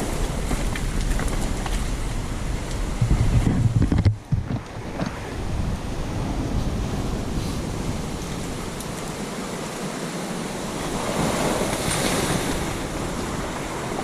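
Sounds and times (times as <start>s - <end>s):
wind buffeting microphone: 0.0s - 14.0s
sea surf washing in: 4.5s - 14.0s.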